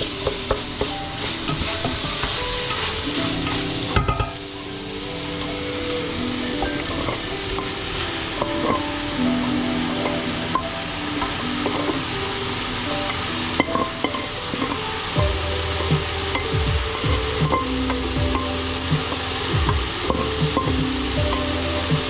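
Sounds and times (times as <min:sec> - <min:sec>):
utensil stirring and scraping: 0:00.0 - 0:04.4
food sizzling in a pan: 0:00.0 - 0:22.0.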